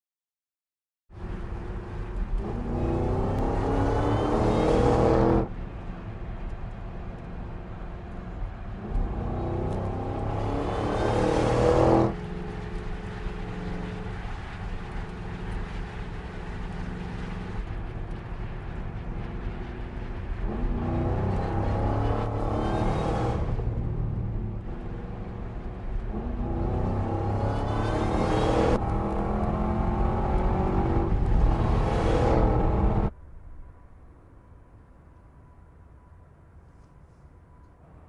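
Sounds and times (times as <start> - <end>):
car engine droning steadily: 1.2 - 33.1
car engine accelerating hard: 2.0 - 5.5, 8.5 - 33.1.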